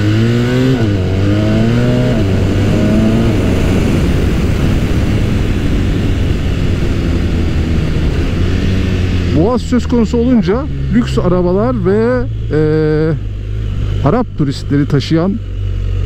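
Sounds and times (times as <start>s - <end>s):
motorcycle engine accelerating: 0.0s - 16.0s
wind and road noise: 0.0s - 16.0s.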